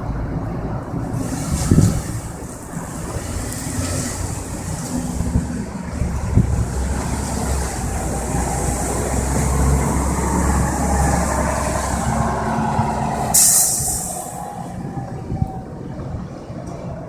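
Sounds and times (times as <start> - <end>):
large vehicle engine rumbling: 0.0 - 17.0
short hiss: 13.3 - 14.4.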